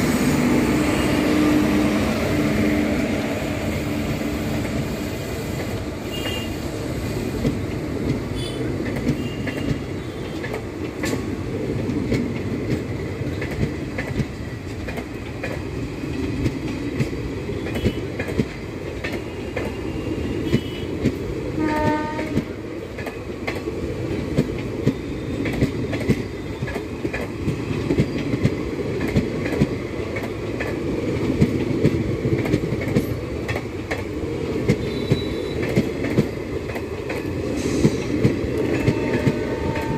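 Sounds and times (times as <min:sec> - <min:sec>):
train rumbling past: 0:00.0 - 0:39.9
train horn blast: 0:06.1 - 0:06.6, 0:21.6 - 0:22.5, 0:38.7 - 0:39.9
wheels clacking over rail joints: 0:07.4 - 0:19.8, 0:20.5 - 0:39.9.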